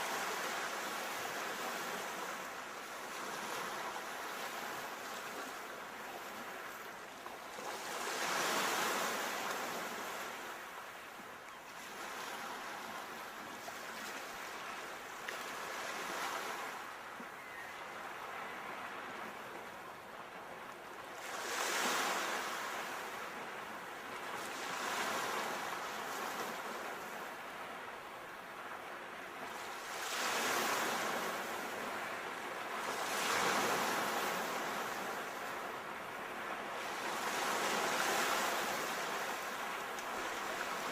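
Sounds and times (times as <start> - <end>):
surf washing: 11.9 - 40.9.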